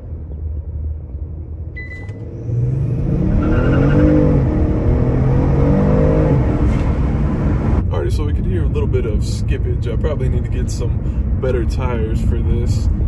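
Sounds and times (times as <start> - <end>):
car engine revving: 2.2 - 7.8.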